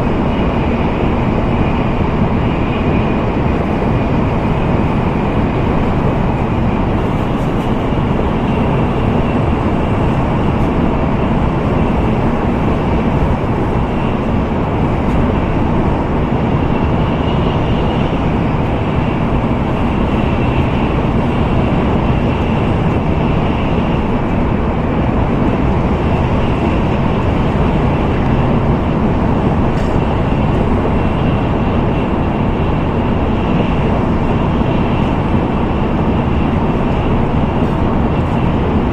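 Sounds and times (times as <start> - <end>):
train running at speed from cabin: 0.0 - 38.9.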